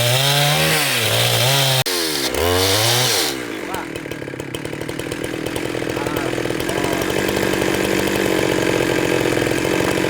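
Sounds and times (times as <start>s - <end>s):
chainsaw cutting wood: 0.0s - 10.0s.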